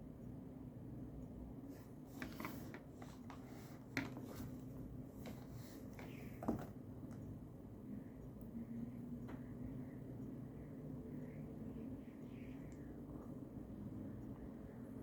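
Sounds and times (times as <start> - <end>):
steady low hum: 0.0 - 15.0
scratchy paper rustles: 2.1 - 6.6.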